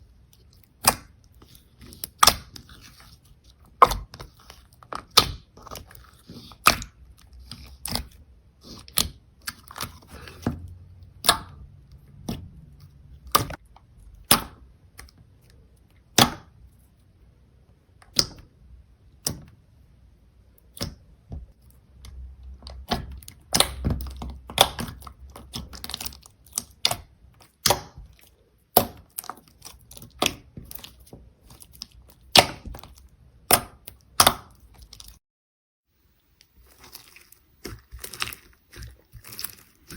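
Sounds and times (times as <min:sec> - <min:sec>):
slime clicking and popping: 0:00.8 - 0:01.2, 0:02.0 - 0:02.6, 0:11.2 - 0:12.5, 0:22.6 - 0:31.0, 0:31.8 - 0:35.0.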